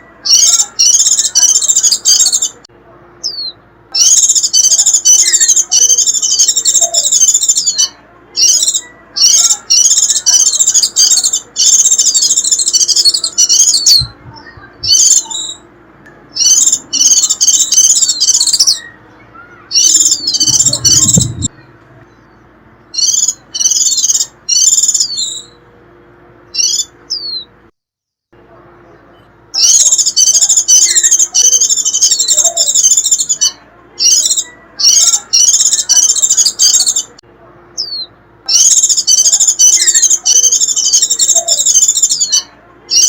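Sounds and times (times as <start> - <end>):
bird twittering: 0.0 - 2.6, 3.2 - 15.7, 16.3 - 25.6, 26.5 - 27.5, 29.5 - 37.1, 37.8 - 43.0
low rumble: 20.0 - 22.7.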